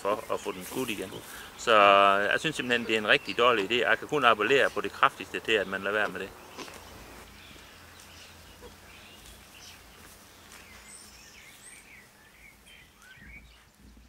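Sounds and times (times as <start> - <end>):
faint outdoor background noise: 0.0 - 14.0.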